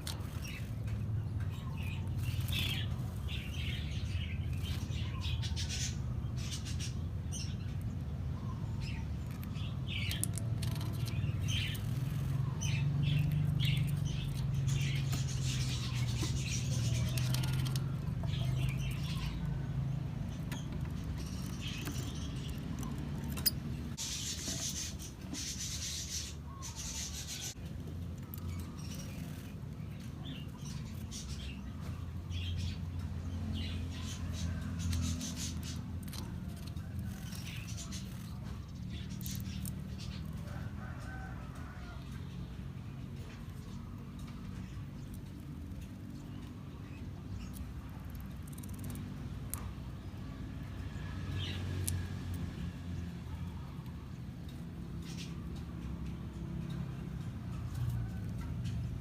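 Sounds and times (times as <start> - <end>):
lovebirds chirping: 0.0 - 59.0
scratchy noises: 20.6 - 27.6.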